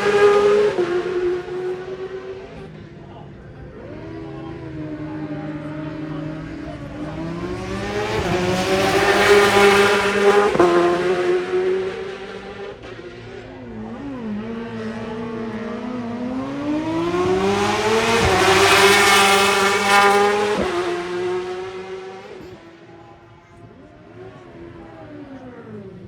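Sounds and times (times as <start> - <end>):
racing motorcycle passing: 0.0 - 26.0.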